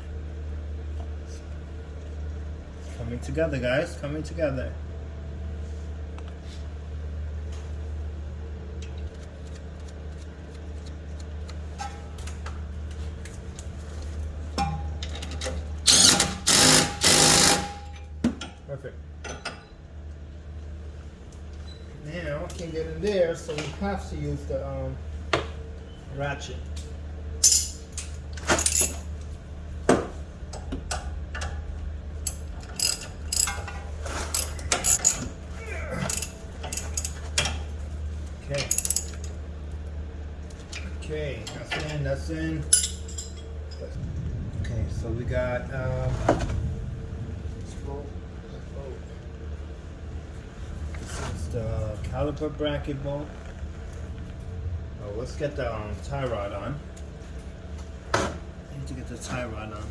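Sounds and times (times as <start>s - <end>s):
steady low hum: 0.0s - 59.9s
parts and tools clicking: 15.0s - 18.0s, 32.2s - 35.3s, 36.0s - 37.6s
ratchet wrench clicking: 15.9s - 17.9s, 32.2s - 33.6s
power tool driving a bolt: 15.9s - 18.0s.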